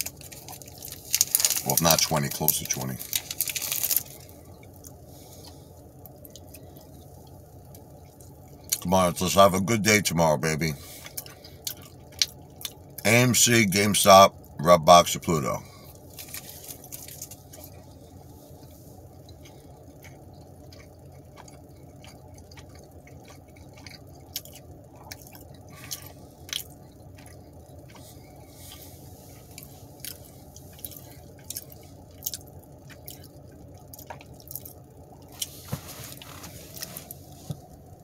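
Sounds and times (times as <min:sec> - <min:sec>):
steady low hum: 0:00.0 - 0:38.0
chewing: 0:10.8 - 0:13.0, 0:15.8 - 0:37.7.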